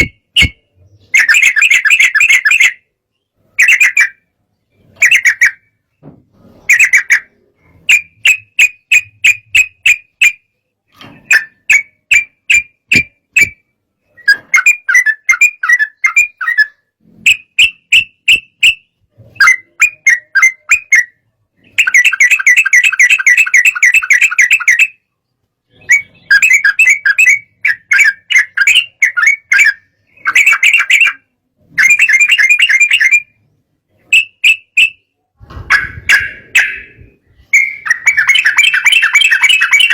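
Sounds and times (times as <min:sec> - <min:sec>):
bulbul chirping song: 0:00.0 - 0:39.9.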